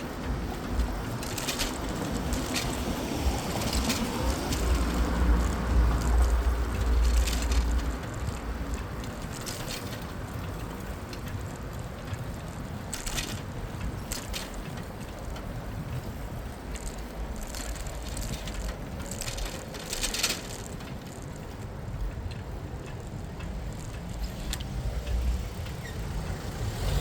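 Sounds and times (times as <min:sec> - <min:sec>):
heavy low rumble: 0:00.0 - 0:12.5
bicycle riding noise: 0:00.0 - 0:27.0
sharp clicks and rattles: 0:00.0 - 0:27.0
street traffic: 0:00.0 - 0:27.0.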